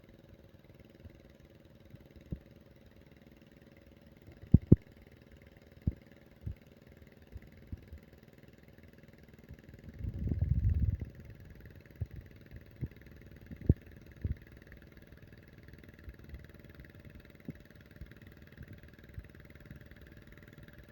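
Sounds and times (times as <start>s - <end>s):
low rumble: 10.0s - 12.2s.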